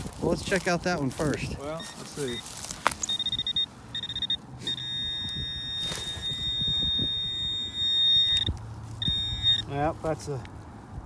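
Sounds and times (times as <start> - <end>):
pinpointer probe buzzing: 1.8 - 9.7.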